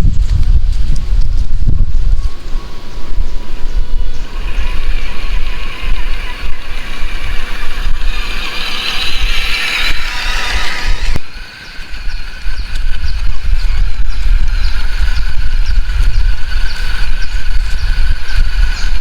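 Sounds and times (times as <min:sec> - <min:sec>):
wind rumble on microphone: 0:00.0 - 0:19.0
toy car motor whining: 0:02.3 - 0:19.0.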